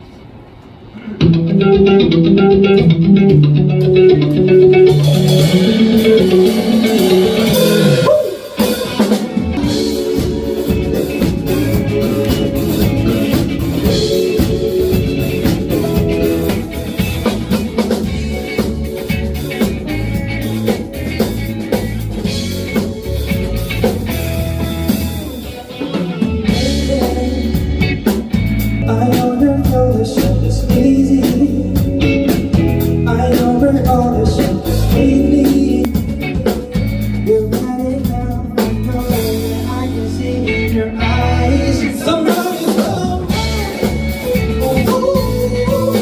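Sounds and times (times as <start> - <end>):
electric guitar: 0.0 - 46.0
drum kit beat: 1.2 - 46.0
person singing: 4.2 - 16.6, 25.2 - 28.2, 28.8 - 46.0.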